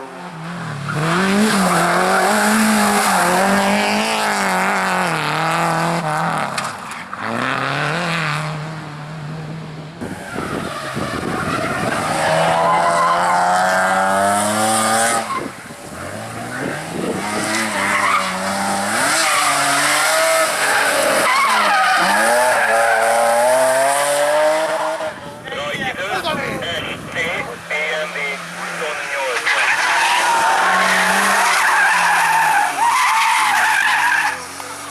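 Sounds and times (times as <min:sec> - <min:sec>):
race car engine revving: 0:00.0 - 0:34.9
tyres squealing: 0:17.5 - 0:23.5, 0:28.2 - 0:34.6.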